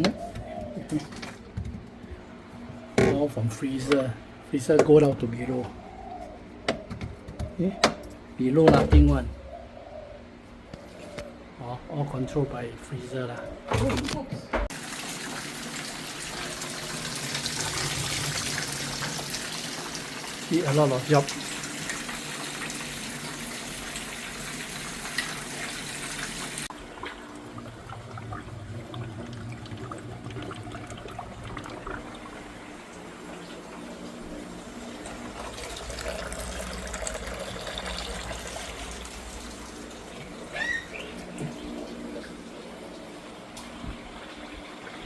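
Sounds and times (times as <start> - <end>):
lower steady water running: 14.7 - 45.0
water running with bright hiss: 14.7 - 45.0.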